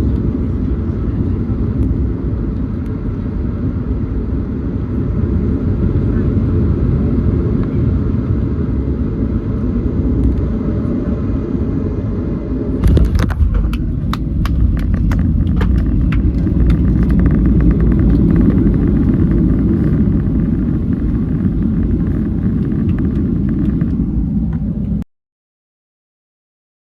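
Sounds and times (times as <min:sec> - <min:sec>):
airplane low rumble: 0:00.0 - 0:25.1
sharp clicks and rattles: 0:12.8 - 0:24.0.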